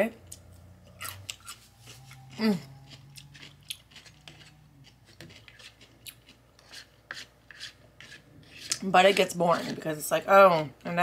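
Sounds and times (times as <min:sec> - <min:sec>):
chewing pickle: 0:00.3 - 0:08.8
plastic fork scraping paper plate: 0:06.6 - 0:09.9.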